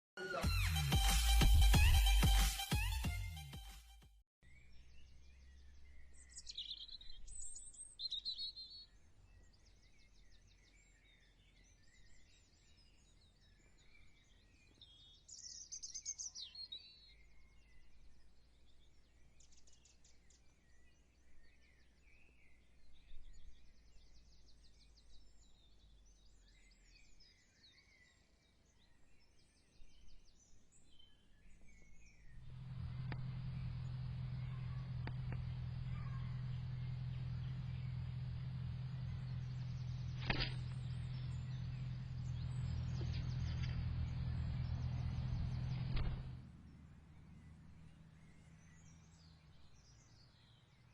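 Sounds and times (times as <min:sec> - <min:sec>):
songbirds chirping: 0:04.4 - 0:50.9
low background rumble: 0:32.1 - 0:50.8.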